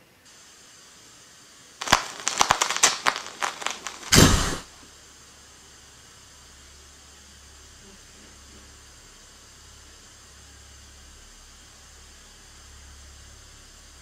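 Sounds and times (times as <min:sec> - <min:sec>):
sharp crackles and clicks: 0:01.8 - 0:04.8.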